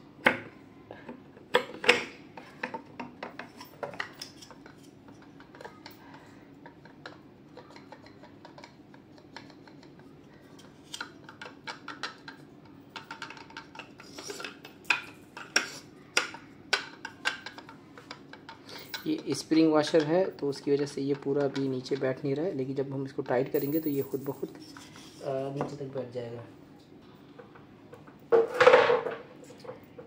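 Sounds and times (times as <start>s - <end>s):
metal and plastic parts clinking: 10.8s - 15.6s.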